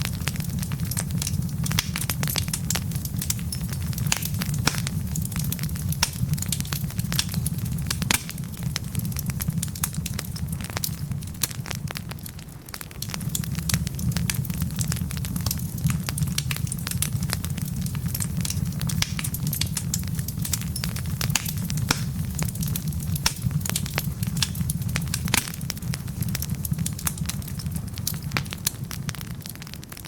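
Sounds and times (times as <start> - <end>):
burning logs crackling and popping: 0.0 - 30.0
rumble of fireplace flames: 0.0 - 30.0.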